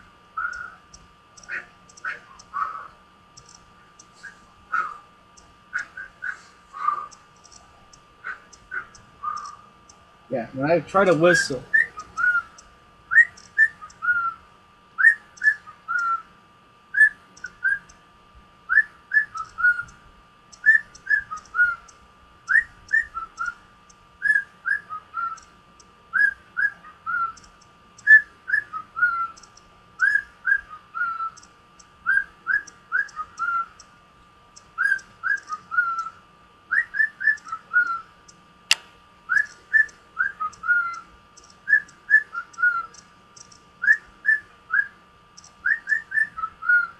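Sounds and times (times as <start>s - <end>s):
cockatiel whistling: 0.4s - 0.8s, 5.8s - 7.1s, 8.7s - 9.6s, 11.3s - 14.4s, 15.0s - 16.2s, 17.0s - 17.9s, 18.7s - 19.9s, 20.6s - 21.9s, 22.5s - 23.6s, 24.2s - 25.4s, 26.2s - 29.4s, 30.0s - 31.4s, 32.0s - 33.7s, 34.8s - 38.1s, 39.3s - 41.0s, 41.7s - 43.0s, 43.8s - 44.9s, 45.6s - 46.9s
sharp click: 3.4s - 4.1s, 7.4s - 9.6s, 38.3s - 39.6s, 41.4s - 41.7s.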